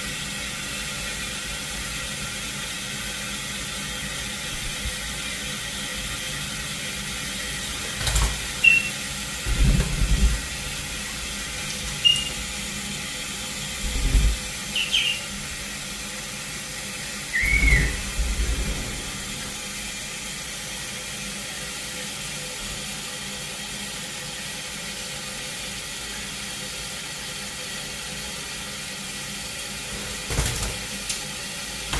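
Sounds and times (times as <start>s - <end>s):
steady hiss: 0.0s - 23.2s
parrot chirps: 8.6s - 9.0s, 12.0s - 12.4s, 14.7s - 15.4s, 17.3s - 18.0s.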